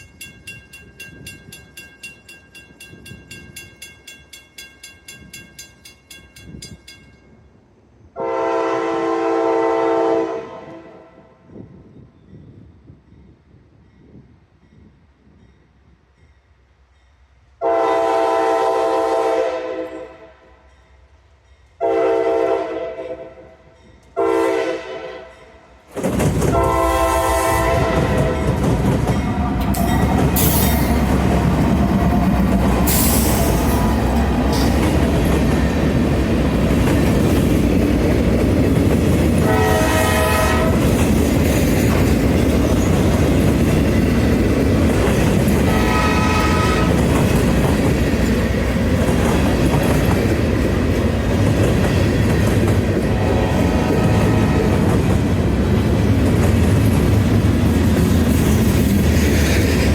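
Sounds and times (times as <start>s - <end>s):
train rumble and wheel clatter: 0.0s - 59.9s
locomotive horn: 8.2s - 11.4s, 17.6s - 20.5s, 21.8s - 25.5s, 26.5s - 30.2s, 39.4s - 40.9s, 45.7s - 47.2s, 53.1s - 54.9s.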